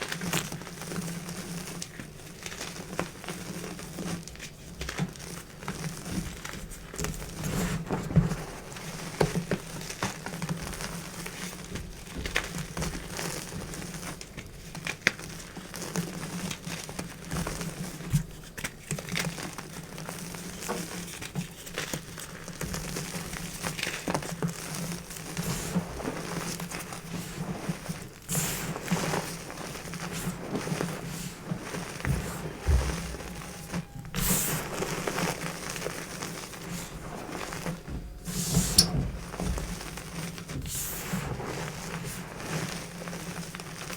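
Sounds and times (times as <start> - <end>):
low steady hum: 28.4 - 41.5.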